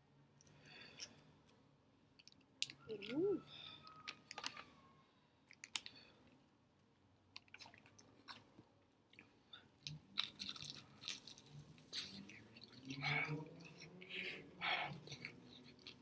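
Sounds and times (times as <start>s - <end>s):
chewing crispy food: 7.3s - 16.0s.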